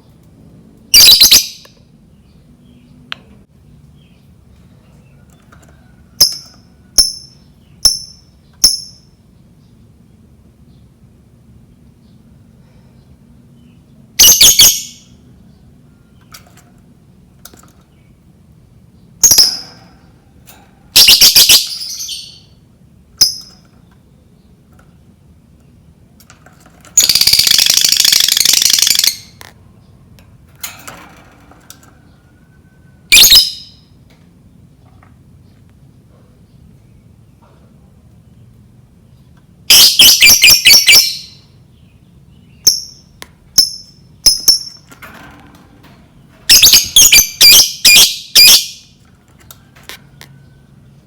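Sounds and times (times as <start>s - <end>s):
bird chattering trill: 21.0s - 22.5s, 27.0s - 29.4s, 33.1s - 33.8s, 39.7s - 41.5s, 46.5s - 48.9s
bird screeching: 46.5s - 48.8s.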